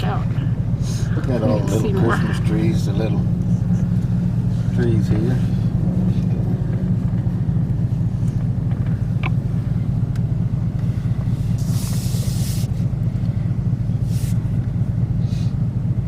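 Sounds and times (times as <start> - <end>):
car driving rumble: 0.0 - 16.0
short hisses: 11.4 - 12.9, 14.0 - 14.5.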